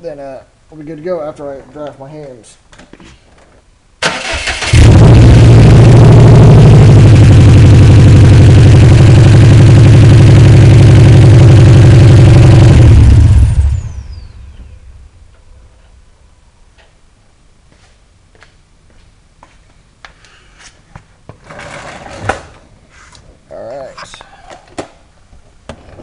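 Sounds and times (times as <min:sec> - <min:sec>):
car engine idling: 0:04.2 - 0:15.8.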